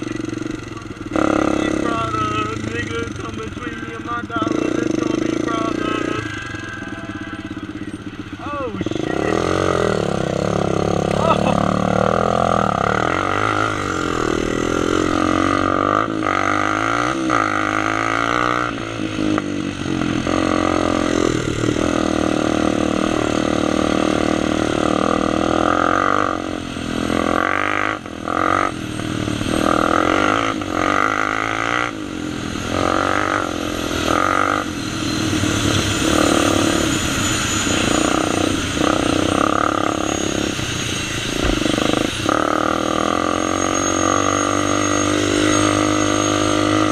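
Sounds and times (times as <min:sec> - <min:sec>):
quad bike engine revving: 0:00.0 - 0:46.9.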